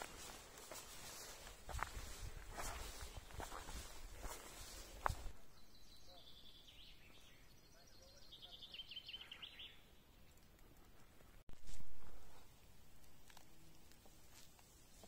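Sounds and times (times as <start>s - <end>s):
footsteps on trail: 0.0s - 5.4s, 11.1s - 15.0s.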